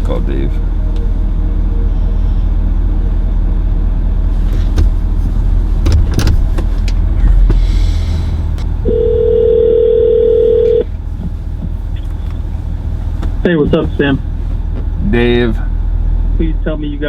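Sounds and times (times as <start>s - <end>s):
vehicle cabin rumble: 0.0s - 17.0s
phone ringback tone: 8.8s - 10.8s.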